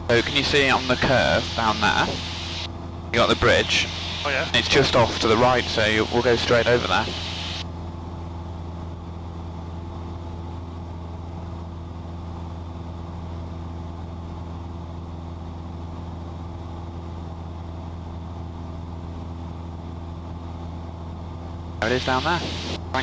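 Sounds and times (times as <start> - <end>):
propeller plane engine droning: 0.0 - 9.1, 21.8 - 23.0.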